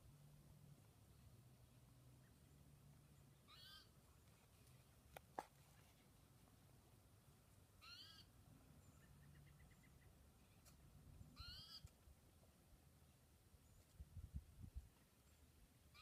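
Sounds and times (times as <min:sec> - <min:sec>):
bird calling: 0:03.5 - 0:03.9, 0:07.8 - 0:10.2, 0:11.4 - 0:11.9.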